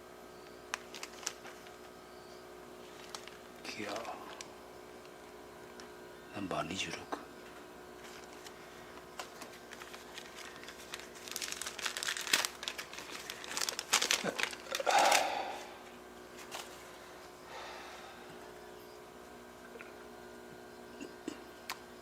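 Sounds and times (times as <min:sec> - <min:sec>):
material crinkling and rustling: 0:00.7 - 0:01.9, 0:02.8 - 0:04.5, 0:08.0 - 0:15.3, 0:16.3 - 0:16.9.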